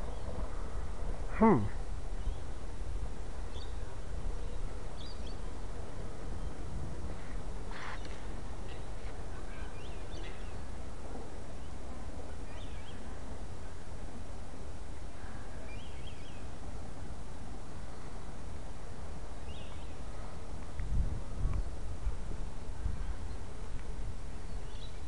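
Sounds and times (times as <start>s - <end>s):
low outdoor rumble and hiss: 0.0s - 25.0s
small birds chirping: 3.5s - 6.7s, 7.7s - 10.8s, 12.4s - 13.1s, 15.4s - 16.5s, 19.4s - 20.1s, 24.4s - 25.0s.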